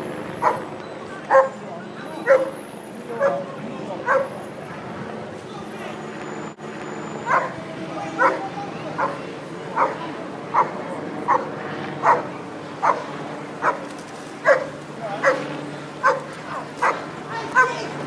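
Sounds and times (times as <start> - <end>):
dog barking: 0.4 - 0.7, 1.3 - 1.6, 2.2 - 2.6, 3.2 - 3.4, 4.0 - 4.3, 7.2 - 13.0, 13.6 - 13.8, 14.4 - 17.0.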